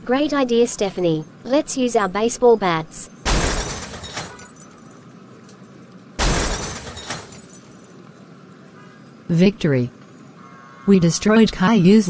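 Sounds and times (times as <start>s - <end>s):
cartoon glass smash: 3.2s - 4.8s, 6.2s - 7.8s.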